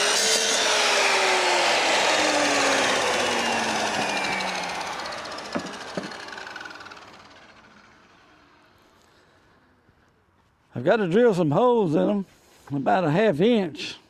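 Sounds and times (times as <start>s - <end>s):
power saw winding down: 0.0s - 8.8s
sharp knocks: 5.5s - 6.3s.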